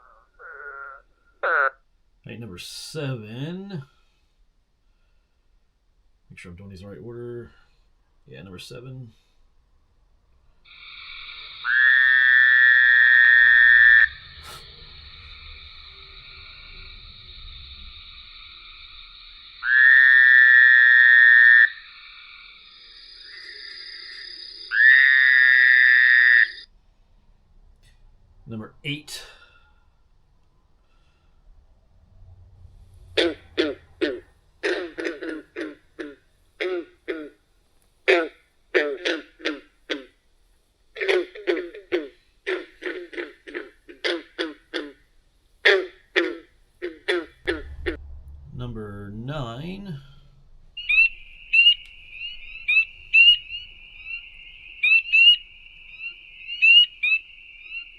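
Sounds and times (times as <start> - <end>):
frog chorus: 0.0 - 1.8, 10.6 - 26.7, 33.2 - 37.4, 38.1 - 40.2, 41.0 - 47.7, 50.8 - 57.9
frog trills: 0.0 - 1.8, 10.7 - 26.7, 33.2 - 37.4, 38.1 - 40.2, 41.0 - 47.7, 50.8 - 57.9.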